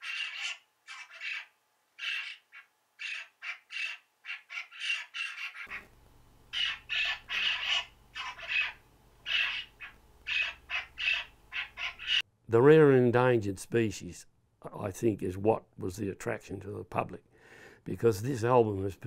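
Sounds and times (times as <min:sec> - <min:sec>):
harsh bird squawks: 0:00.0 - 0:05.9, 0:06.5 - 0:12.3.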